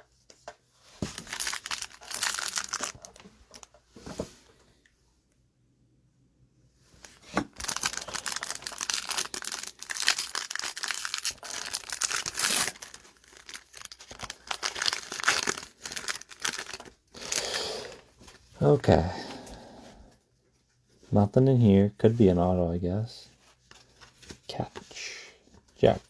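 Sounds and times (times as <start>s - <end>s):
plastic foil wrapper crinkling: 1.1s - 3.7s, 7.0s - 18.0s.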